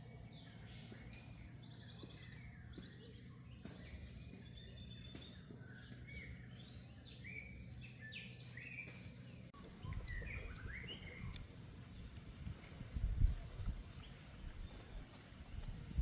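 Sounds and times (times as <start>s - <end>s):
birds chirping: 0.0s - 12.5s.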